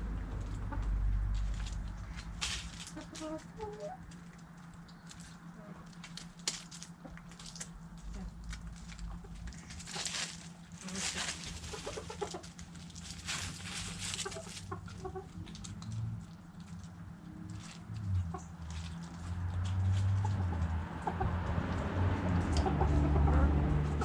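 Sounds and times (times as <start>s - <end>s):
hens clucking: 0.0s - 24.0s
scratchy rustling: 1.4s - 4.2s, 5.1s - 14.8s.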